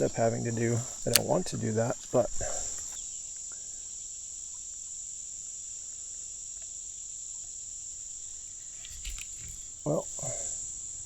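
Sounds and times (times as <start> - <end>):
faint ticks: 0.0 - 3.7, 8.2 - 11.0
high-pitched insect chorus: 0.0 - 11.0.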